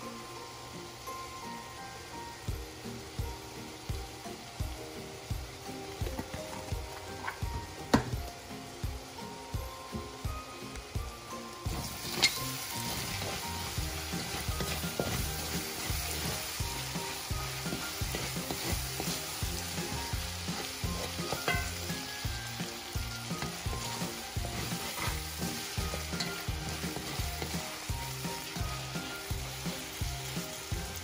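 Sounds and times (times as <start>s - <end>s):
food sizzling in a pot: 0.0s - 31.0s
background music with bass line: 4.7s - 31.0s
wooden spatula scraping pot: 23.4s - 27.5s.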